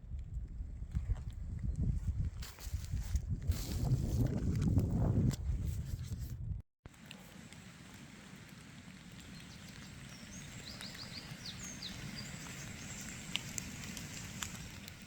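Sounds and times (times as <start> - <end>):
small bird chirping: 9.2 - 13.3.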